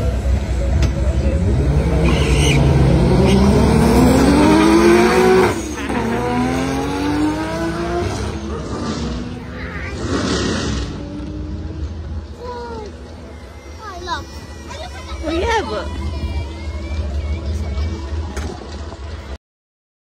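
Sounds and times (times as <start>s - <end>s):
car engine accelerating: 0.0s - 13.3s.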